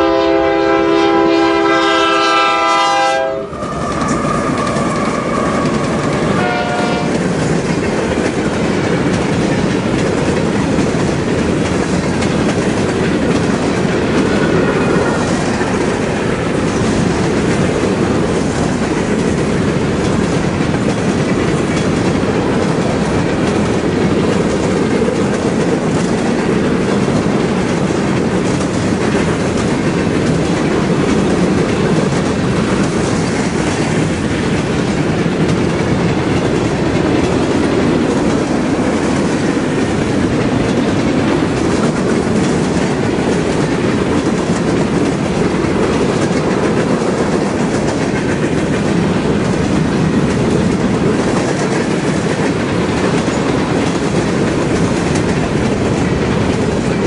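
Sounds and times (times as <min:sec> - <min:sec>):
steel wheels rumbling on rails: 0:00.0 - 0:57.0
wheels clicking over rail joints: 0:03.6 - 0:57.0.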